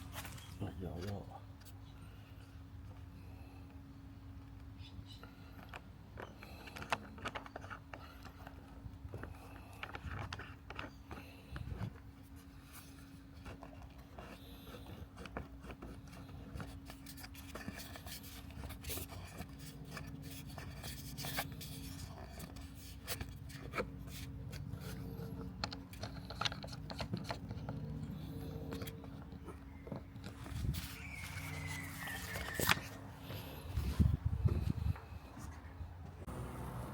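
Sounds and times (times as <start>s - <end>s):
lower hum: 30.4s - 36.9s
robotic lawn mower humming: 36.3s - 36.9s.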